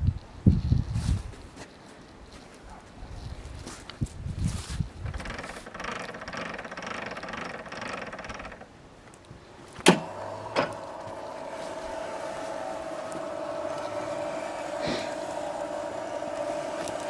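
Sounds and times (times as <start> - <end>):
electric motor with gear whine: 9.9 - 17.0.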